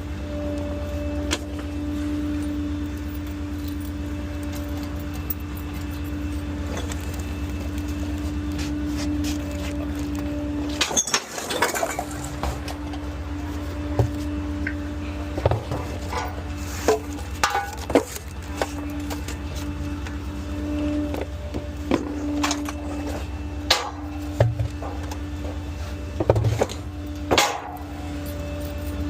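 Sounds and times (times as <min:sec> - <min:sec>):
garbage truck humming: 0:00.0 - 0:29.0
trash cans knocking and clattering: 0:15.4 - 0:18.2, 0:26.2 - 0:27.8.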